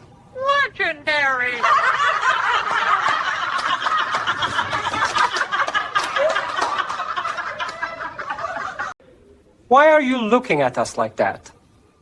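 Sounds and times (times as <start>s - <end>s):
people laughing: 1.4s - 9.0s.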